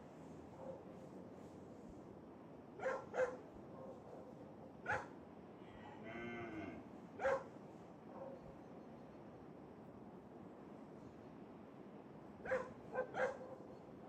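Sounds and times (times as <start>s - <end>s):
dog barking: 0.5s - 0.9s, 2.8s - 5.2s, 7.2s - 7.5s, 8.1s - 8.4s, 12.4s - 13.8s.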